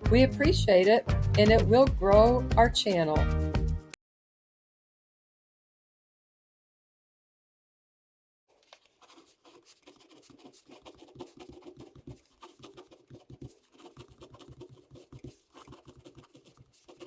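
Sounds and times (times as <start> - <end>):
tapping and scratching: 8.6 - 17.0.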